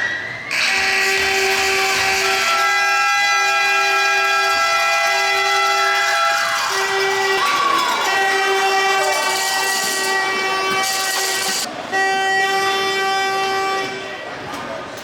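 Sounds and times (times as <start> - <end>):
crowd noise: 0.0 - 15.0
horn long blasts: 0.5 - 14.4.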